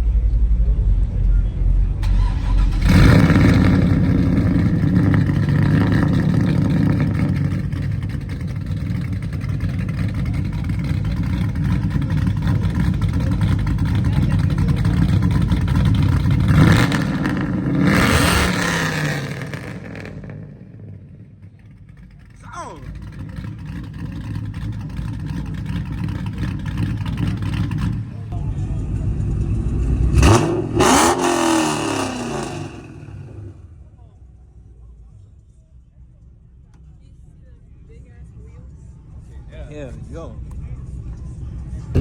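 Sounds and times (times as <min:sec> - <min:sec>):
car engine rumbling and revving: 0:00.0 - 0:42.0.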